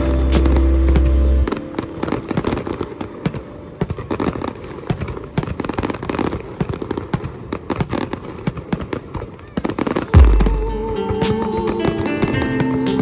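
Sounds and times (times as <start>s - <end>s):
fireworks cracking and banging: 0.0s - 13.0s.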